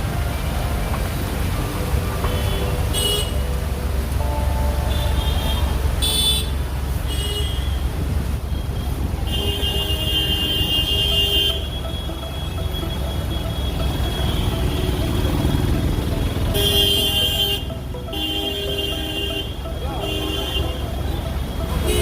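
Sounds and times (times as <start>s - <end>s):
low rumble of engines: 0.0s - 22.0s
vehicle horns honking: 2.2s - 3.7s, 4.7s - 8.0s, 9.2s - 15.8s, 16.4s - 22.0s.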